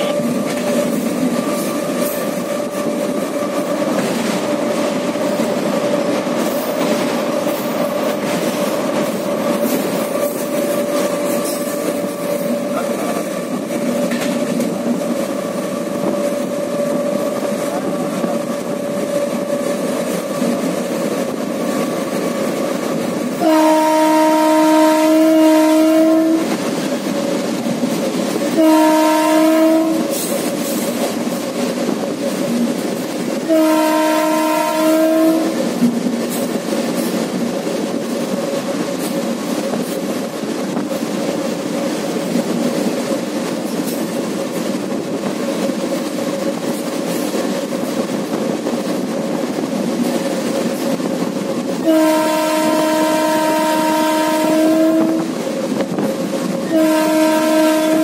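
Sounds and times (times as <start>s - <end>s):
train wheels clattering on rails: 0.0s - 58.0s
train horn blasts: 23.4s - 26.6s, 28.5s - 30.3s, 33.4s - 35.7s, 51.8s - 55.4s, 56.6s - 58.0s.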